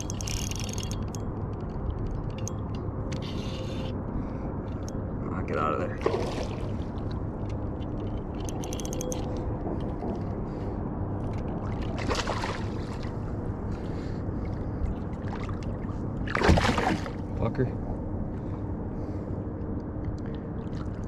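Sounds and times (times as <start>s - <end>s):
water and wind rumble: 0.0s - 21.0s
water splash: 6.0s - 6.7s, 11.9s - 13.1s, 16.3s - 17.2s.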